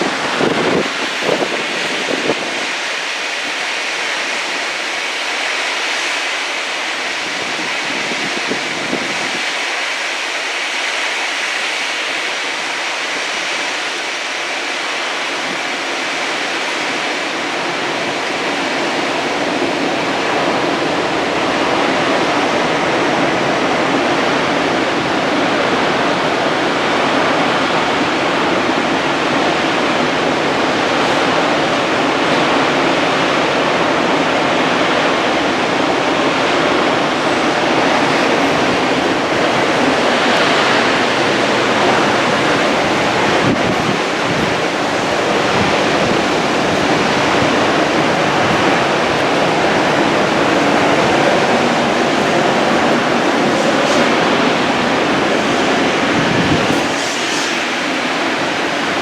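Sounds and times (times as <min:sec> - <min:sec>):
steady rushing noise: 0:00.0 - 0:59.0.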